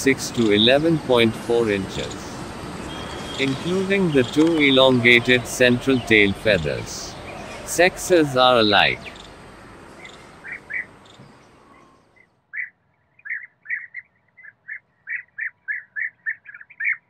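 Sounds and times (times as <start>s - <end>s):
bee-eaters calling: 0.3s - 9.4s, 10.0s - 11.1s.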